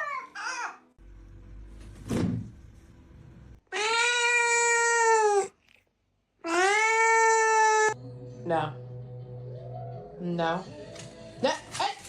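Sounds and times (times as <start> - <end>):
cat meowing: 3.7 - 5.5, 6.4 - 8.0.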